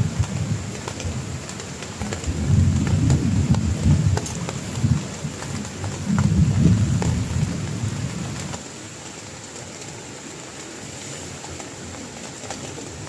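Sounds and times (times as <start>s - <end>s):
low rumble of thunder: 0.0s - 8.6s
heavy rain falling: 0.0s - 13.0s
sharp raindrop impacts: 0.0s - 13.0s.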